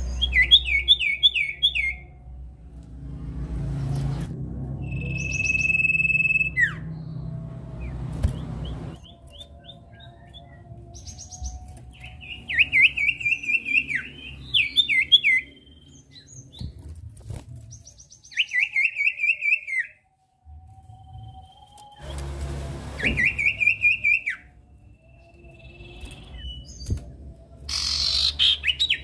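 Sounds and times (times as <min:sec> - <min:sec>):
high bird twittering: 0:27.7 - 0:29.0.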